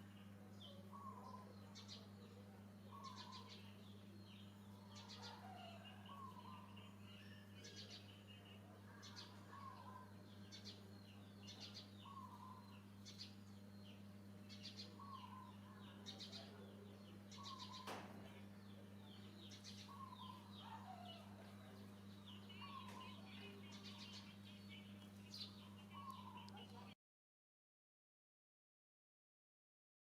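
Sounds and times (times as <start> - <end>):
steady low hum: 0.0 - 27.0
bird calling: 0.7 - 1.9, 2.9 - 3.8, 4.9 - 8.1, 9.0 - 10.9, 11.5 - 13.3, 14.5 - 16.5, 17.3 - 18.0, 19.5 - 21.7, 22.3 - 26.9.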